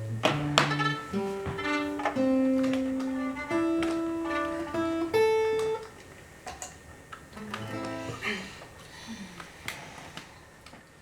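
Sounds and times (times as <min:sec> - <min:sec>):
acoustic guitar plucked melody: 0:00.0 - 0:08.6.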